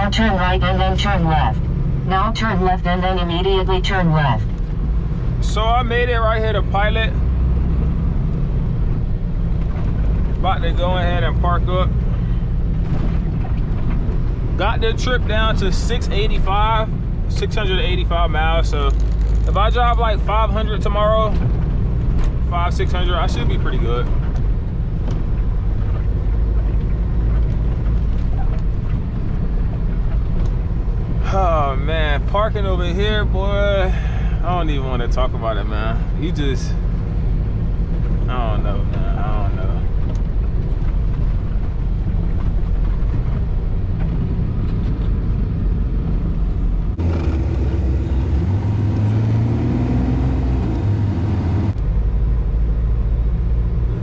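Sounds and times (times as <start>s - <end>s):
diesel truck engine rumbling: 0.0s - 54.0s
diesel truck engine running: 45.3s - 51.8s.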